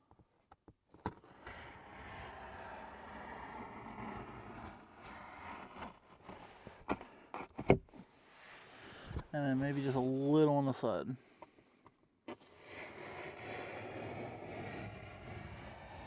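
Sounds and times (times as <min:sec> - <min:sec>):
styrofoam board being cut: 0:01.1 - 0:07.8, 0:12.3 - 0:16.0.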